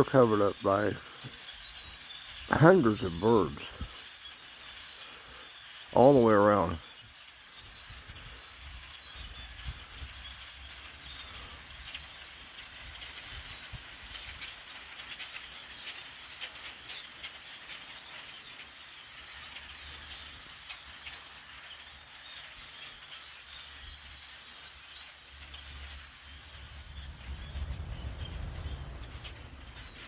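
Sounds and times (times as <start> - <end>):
flock of birds chattering: 0.0 - 30.0
low rumble: 26.2 - 30.0.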